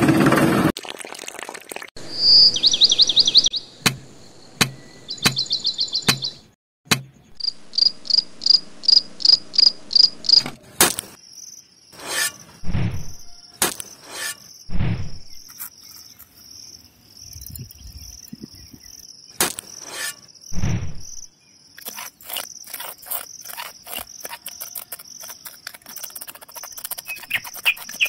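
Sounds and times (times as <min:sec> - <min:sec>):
sharp clicks and taps: 0:06.9 - 0:07.1
insect chirping: 0:07.4 - 0:10.4, 0:11.2 - 0:14.7, 0:15.3 - 0:28.0.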